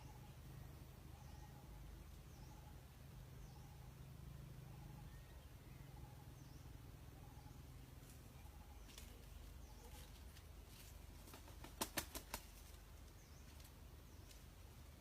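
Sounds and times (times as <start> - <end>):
faint low hum: 0.0 - 11.8
rooster wings clapping: 11.2 - 12.6.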